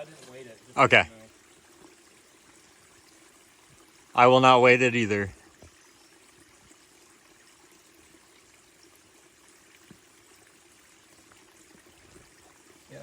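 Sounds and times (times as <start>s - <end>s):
faint rushing hiss: 0.0s - 6.8s.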